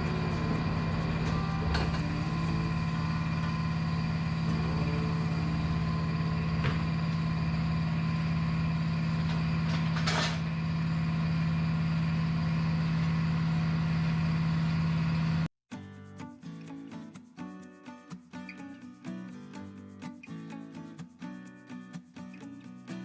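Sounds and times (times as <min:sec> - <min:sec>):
machine humming: 0:00.0 - 0:09.8.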